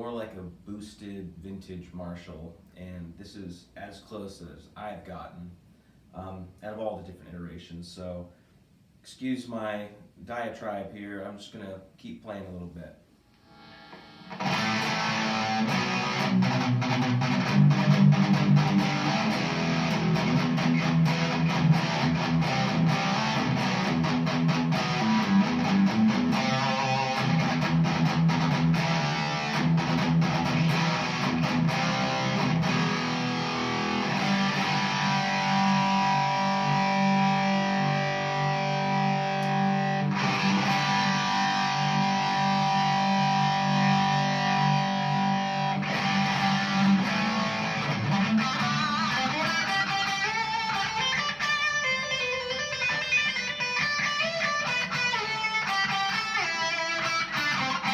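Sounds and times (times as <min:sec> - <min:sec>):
overdriven electric guitar: 0:13.4 - 0:57.9.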